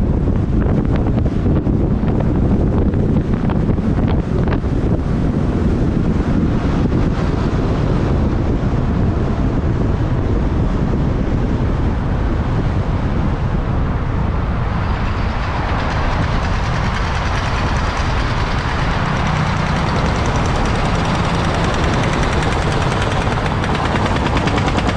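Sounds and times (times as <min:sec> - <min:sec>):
road rumble: 0:00.0 - 0:24.9
wind rush on microphone: 0:00.0 - 0:24.9
motorbike engine: 0:14.4 - 0:24.9.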